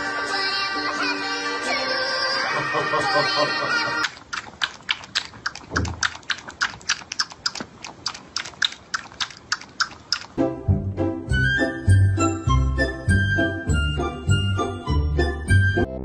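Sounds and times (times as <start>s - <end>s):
music: 0.0s - 4.0s, 10.4s - 16.0s
pet crunching hard food: 4.0s - 10.4s.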